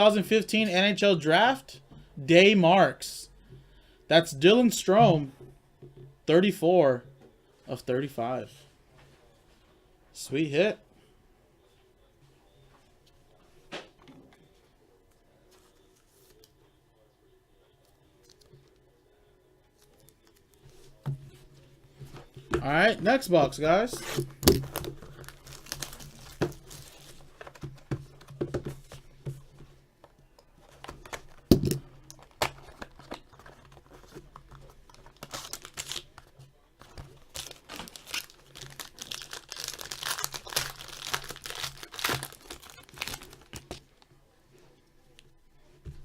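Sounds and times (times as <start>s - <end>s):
plastic wrap tearing and crinkling: 23.9s - 27.6s, 34.8s - 43.8s.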